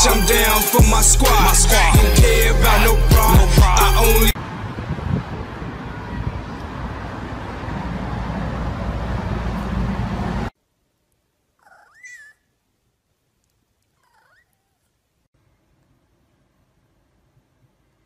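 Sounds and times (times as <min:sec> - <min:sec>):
cat meowing: 0:14.0 - 0:14.8.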